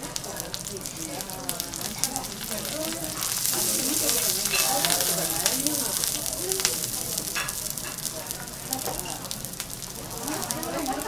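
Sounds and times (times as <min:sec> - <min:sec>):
vegetables sizzling on a griddle: 0:00.0 - 0:11.0.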